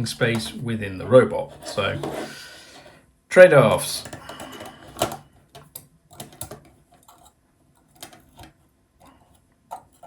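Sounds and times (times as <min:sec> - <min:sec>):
small parts clicking and tapping: 0:04.0 - 0:10.0.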